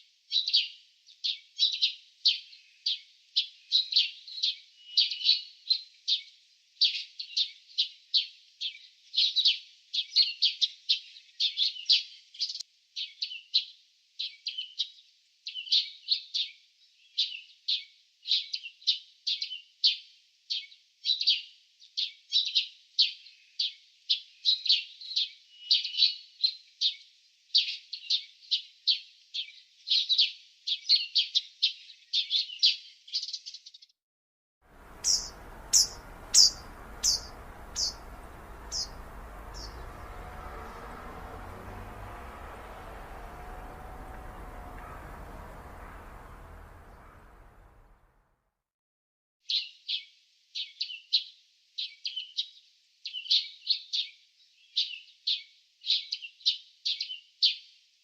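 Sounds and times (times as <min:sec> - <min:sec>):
small songbirds chirping: 0:00.3 - 0:33.9, 0:34.7 - 0:48.1, 0:49.4 - 0:57.6
steady outdoor hiss: 0:34.7 - 0:48.0.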